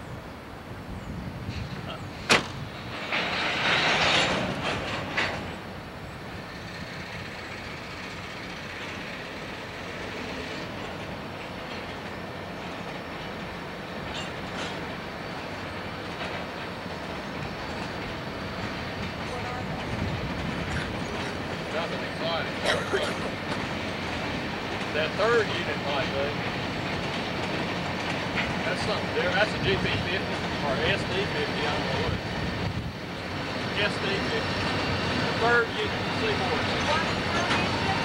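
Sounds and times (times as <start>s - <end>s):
diesel locomotive rumble: 0.0s - 38.0s
wheels on rail: 0.0s - 38.0s
sharp knock: 2.3s - 2.6s.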